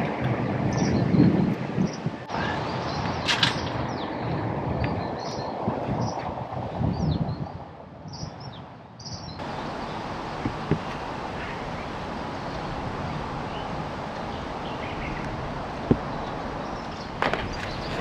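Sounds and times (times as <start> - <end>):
small birds chirping: 0.5 - 6.3, 6.9 - 18.0
steady hiss: 9.4 - 18.0.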